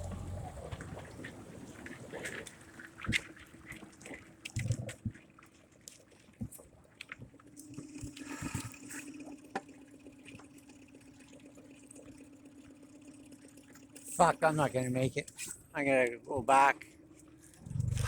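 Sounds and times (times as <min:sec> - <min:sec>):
low hum: 0:00.0 - 0:01.2, 0:16.9 - 0:18.0
water sloshing: 0:00.0 - 0:15.7.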